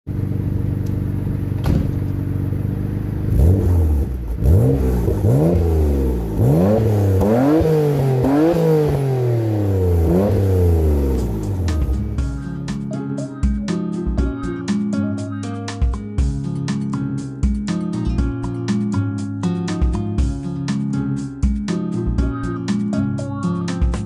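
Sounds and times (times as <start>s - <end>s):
car engine idling and revving: 0.1s - 13.0s
guitar music: 3.7s - 24.0s.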